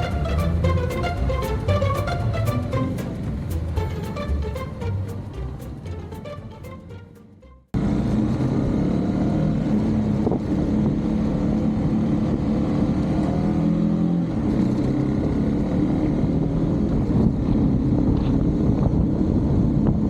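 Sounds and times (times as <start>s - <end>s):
wind rumble on microphone: 7.8s - 20.0s.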